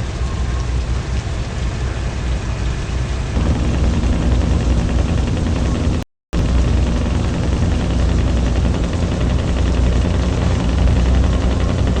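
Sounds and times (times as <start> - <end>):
truck engine running: 3.4 - 12.0.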